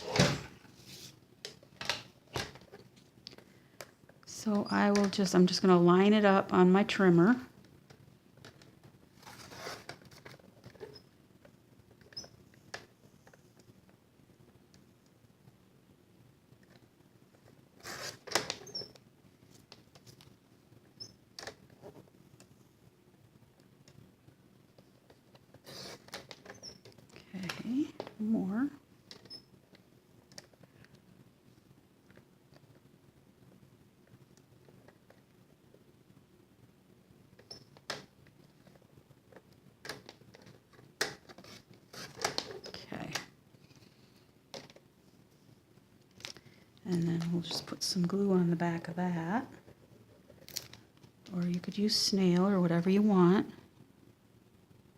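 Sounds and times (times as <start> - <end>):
light scratching: 9.2 - 11.1.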